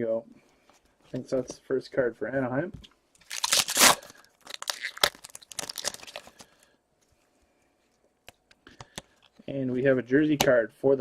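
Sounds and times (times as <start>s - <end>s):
wrapper tearing and crinkling: 3.2s - 6.6s.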